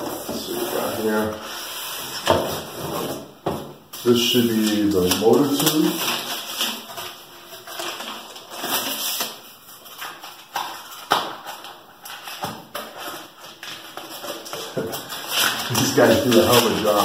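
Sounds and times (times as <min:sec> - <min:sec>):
packaging rustling and crinkling: 0:04.0 - 0:17.0.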